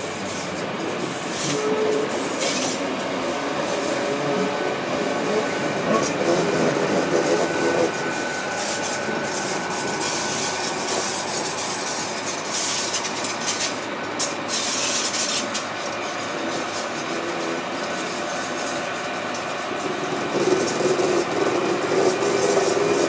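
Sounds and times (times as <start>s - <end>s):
train wheels rumbling on rails: 0.0s - 23.0s
wheels hissing and scraping: 0.1s - 23.0s
brief squealing tone: 5.2s - 11.6s.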